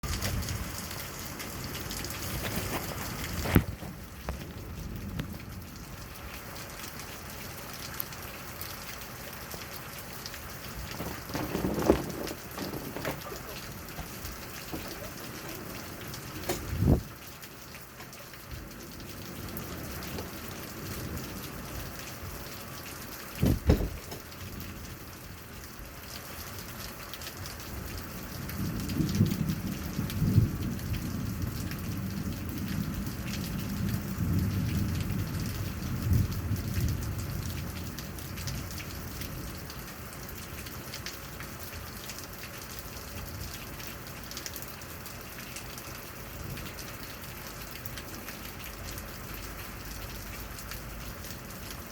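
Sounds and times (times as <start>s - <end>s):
steady rain: 0.0s - 51.9s
thunder rumbling: 10.5s - 17.3s
low thump: 23.4s - 24.1s.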